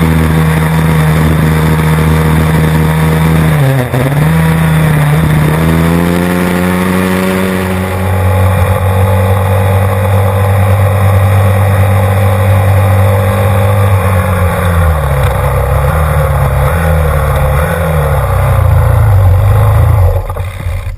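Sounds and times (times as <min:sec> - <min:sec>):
pit bike engine revving: 0:00.0 - 0:20.9.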